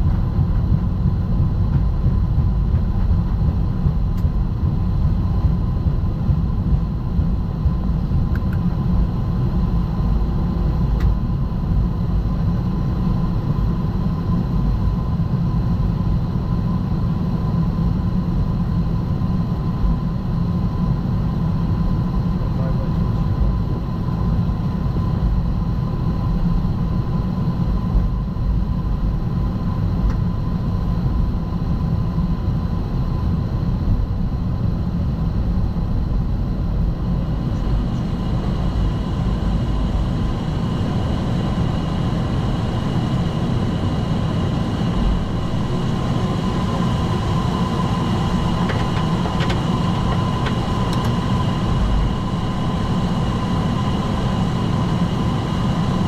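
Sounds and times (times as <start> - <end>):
low rumble of idling jet engines: 0.0 - 56.0
thin steady whine: 0.0 - 56.0
higher whine: 35.6 - 56.0.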